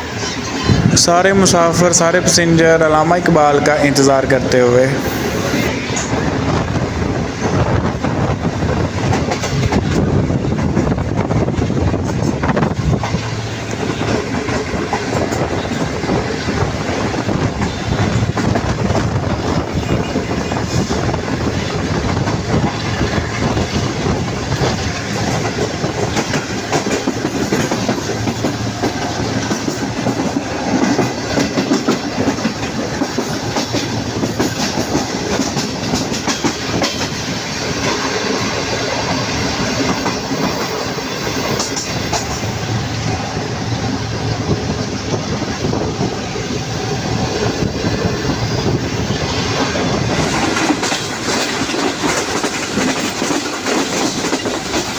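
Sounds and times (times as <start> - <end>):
train coaches rumbling: 0.0 - 54.9
wheels clicking over rail joints: 7.4 - 42.6, 47.2 - 54.9.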